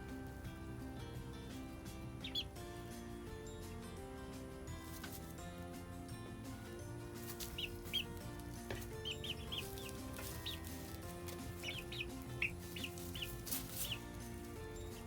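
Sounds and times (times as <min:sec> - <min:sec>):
soft background music: 0:00.0 - 0:15.0
chicks peeping: 0:01.4 - 0:03.0, 0:07.0 - 0:15.0.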